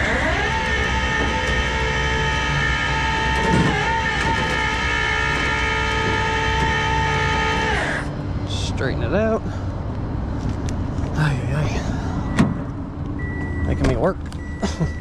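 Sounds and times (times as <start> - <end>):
mechanical whine: 0.0 - 8.2
low engine rumble: 0.0 - 15.0.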